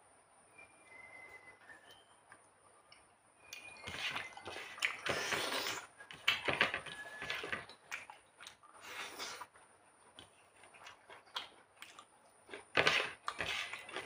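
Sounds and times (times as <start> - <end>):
wet chewing and lip-smacking: 3.5 - 14.0.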